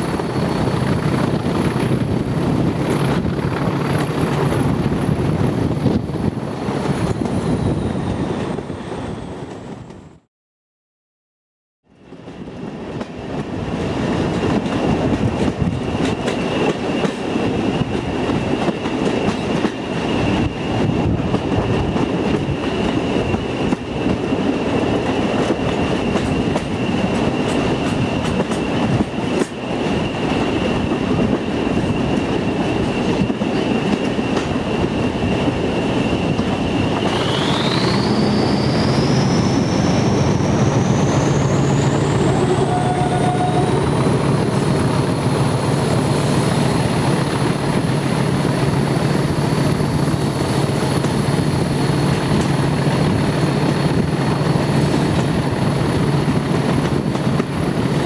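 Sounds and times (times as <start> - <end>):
train wheels clattering over rails: 12.2 - 58.0
high whine: 36.0 - 47.5
locomotive engine note: 37.2 - 45.8.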